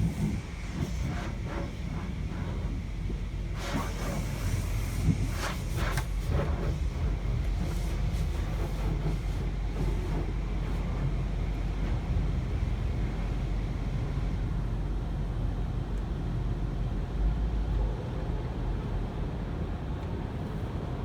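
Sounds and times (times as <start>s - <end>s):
car wash machinery rumbling: 0.0s - 21.0s.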